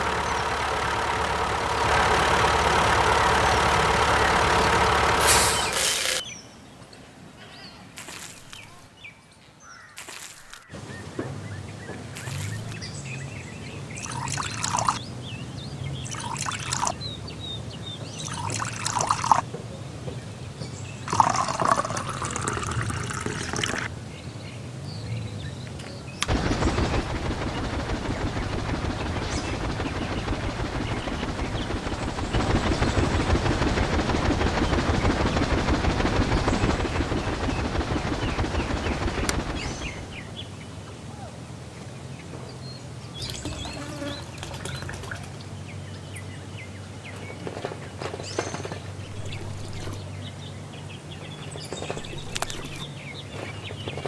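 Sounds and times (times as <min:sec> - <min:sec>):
water pouring: 0:43.2 - 0:45.5
water splashing: 0:43.2 - 0:45.6.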